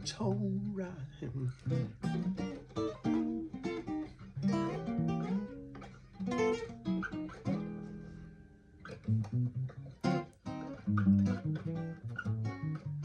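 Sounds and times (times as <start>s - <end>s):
person singing: 0.0s - 2.0s
blues guitar playing: 0.0s - 13.0s.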